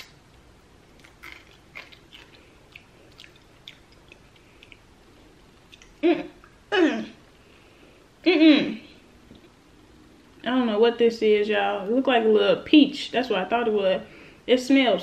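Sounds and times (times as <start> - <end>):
person chewing candy: 0.9 - 4.9
vocal sound of disgust: 5.9 - 7.2.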